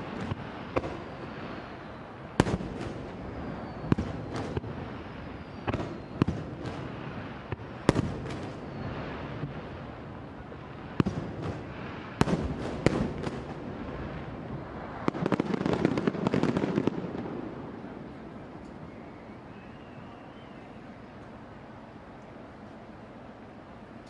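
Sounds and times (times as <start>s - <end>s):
rapid crackling firework bursts: 0.0s - 10.1s, 10.8s - 17.5s
fireworks bursting with bangs: 0.0s - 18.2s.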